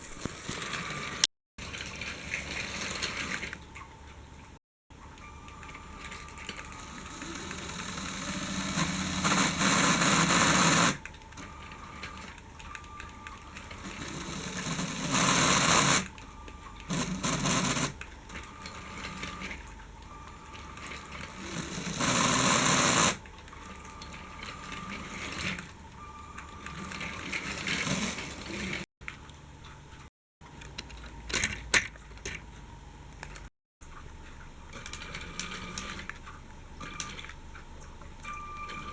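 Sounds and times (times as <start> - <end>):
toy train motor whirring: 0.0 - 3.6, 5.5 - 16.2, 16.8 - 19.7, 20.3 - 28.9.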